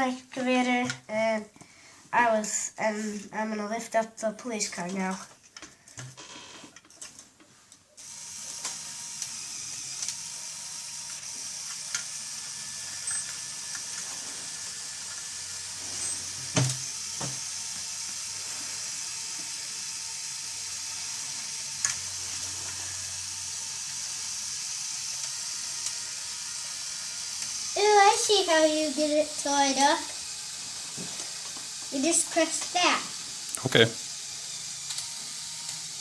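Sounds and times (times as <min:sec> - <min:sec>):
small electric motors whirring: 0:08.0 - 0:36.0.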